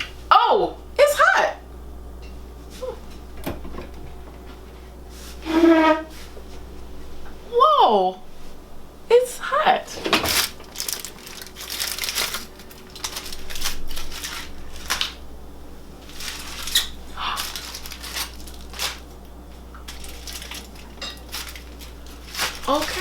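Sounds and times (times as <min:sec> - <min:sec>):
wrapping crinkling and rustling: 0:10.0 - 0:15.2, 0:16.0 - 0:23.0.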